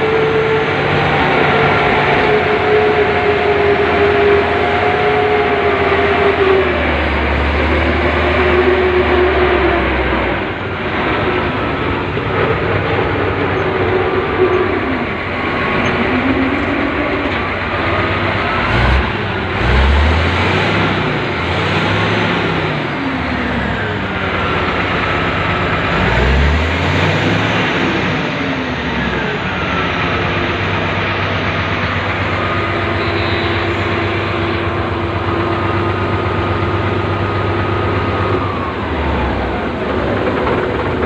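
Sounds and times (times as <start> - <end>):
wavering whine: 0.0 - 19.5, 28.2 - 41.0
heavy machine engine drone: 0.0 - 41.0.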